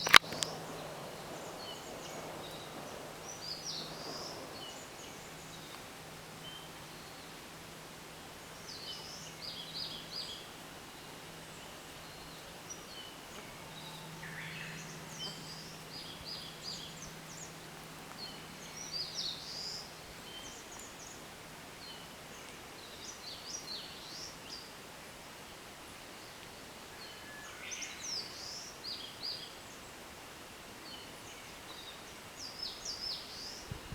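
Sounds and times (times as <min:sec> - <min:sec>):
songbirds singing: 0:00.0 - 0:24.9, 0:30.8 - 0:33.9.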